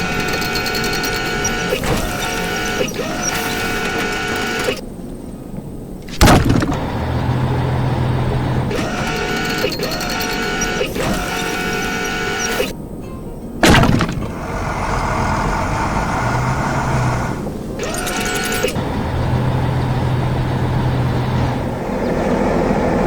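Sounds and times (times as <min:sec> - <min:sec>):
cartoon machine whine: 0:00.0 - 0:04.8, 0:06.2 - 0:12.8, 0:13.6 - 0:21.7
loud crash: 0:06.1 - 0:07.0, 0:13.6 - 0:14.7.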